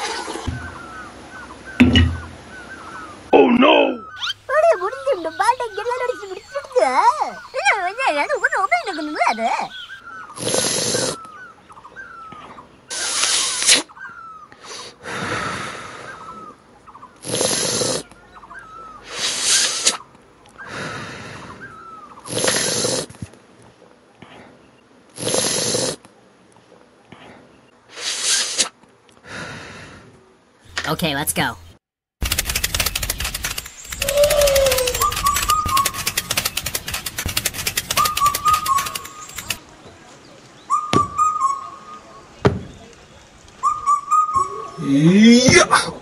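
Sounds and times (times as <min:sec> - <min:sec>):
sharp knocks: 0:01.8 - 0:02.4
loud rasping snores: 0:10.4 - 0:11.2, 0:17.2 - 0:18.1, 0:22.3 - 0:23.2, 0:25.2 - 0:26.0
fast run of sharp clicks: 0:32.2 - 0:39.6
short whistled chirp: 0:33.9 - 0:36.6, 0:37.8 - 0:39.6
soft whistling breath: 0:34.0 - 0:36.1.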